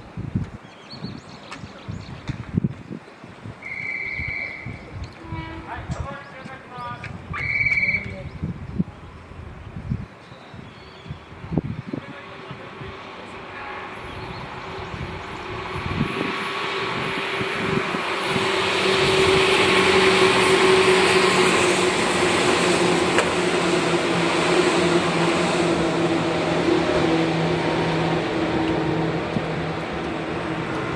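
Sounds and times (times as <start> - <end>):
electric train passing: 11.3 - 30.9.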